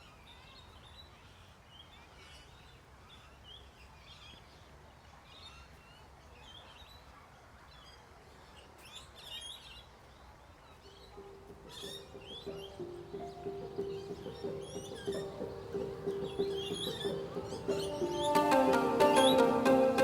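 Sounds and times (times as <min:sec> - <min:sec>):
birds chirping and calling: 0:10.9 - 0:20.0.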